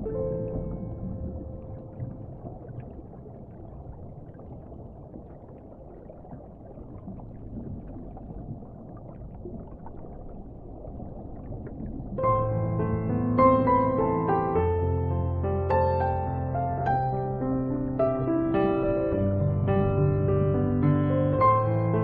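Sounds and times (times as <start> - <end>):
piano music: 0.0 - 2.8, 12.2 - 22.0
faint crackles: 0.0 - 12.5
underwater rumble of water: 0.0 - 22.0.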